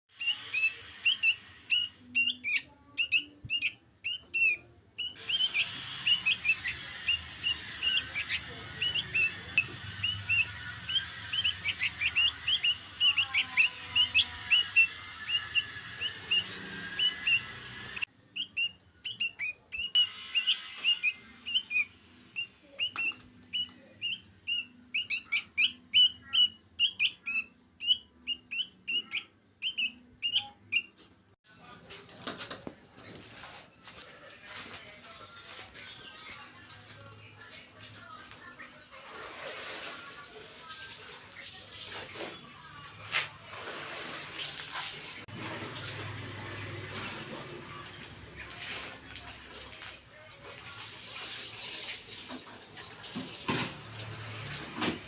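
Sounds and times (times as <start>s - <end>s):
young bird chirping: 0.1s - 31.0s.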